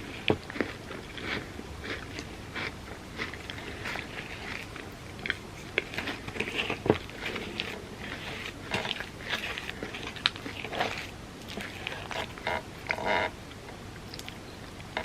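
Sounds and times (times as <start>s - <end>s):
chewing and biting food: 0.0s - 13.4s
sharp mouth clicks and smacks: 14.0s - 15.0s.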